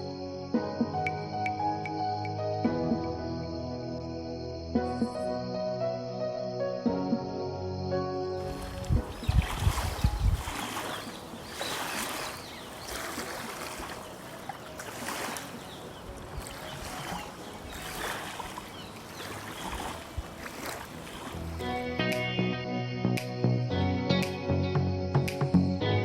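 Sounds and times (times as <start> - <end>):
river water splashing: 8.4 - 22.3.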